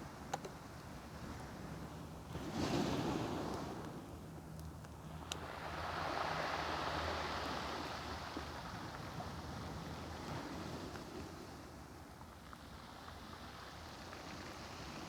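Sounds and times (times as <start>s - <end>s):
ocean waves washing onto shore: 5.2s - 11.7s.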